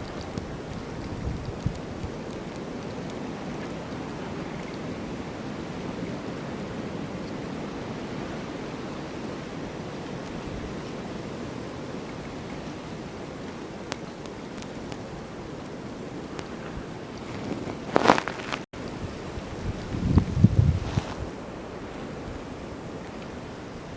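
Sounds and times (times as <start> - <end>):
snowstorm wind rushing: 15.2 - 23.9.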